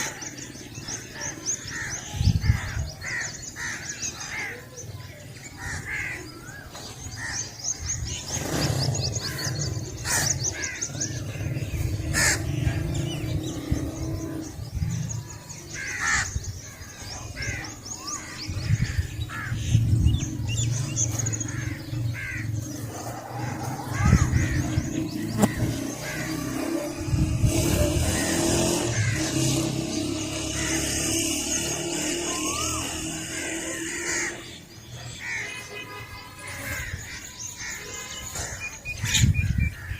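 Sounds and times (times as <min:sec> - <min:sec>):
crows cawing: 0:00.0 - 0:04.6, 0:05.6 - 0:06.6, 0:12.1 - 0:12.8, 0:15.7 - 0:16.4, 0:21.2 - 0:26.7, 0:28.2 - 0:29.5, 0:32.0 - 0:34.6, 0:35.2 - 0:39.9
high rapid bird trill: 0:00.0 - 0:39.9
small birds chirping: 0:00.0 - 0:39.9.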